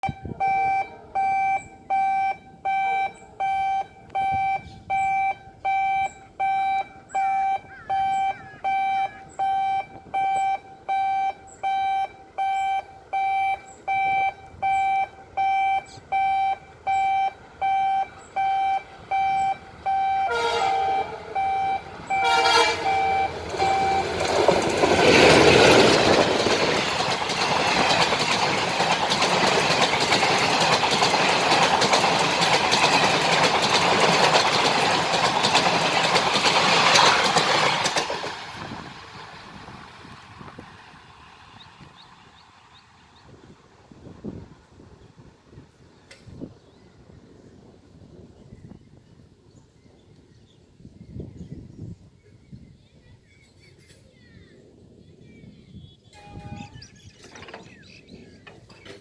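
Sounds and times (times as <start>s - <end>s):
locomotive horn blasts: 0.0s - 24.2s, 56.1s - 56.9s
electronic warning beeps: 0.0s - 24.3s
train rushing past: 3.5s - 44.7s.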